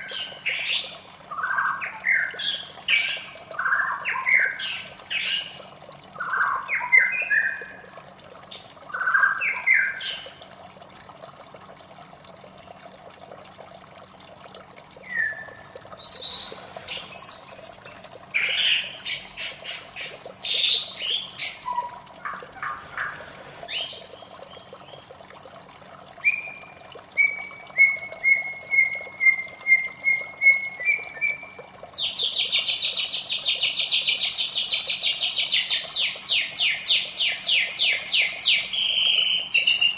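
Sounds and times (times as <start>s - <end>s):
faint water sound: 0.0s - 39.9s
bird singing whistles and chirps: 15.0s - 16.6s, 27.2s - 31.4s, 36.3s - 39.9s.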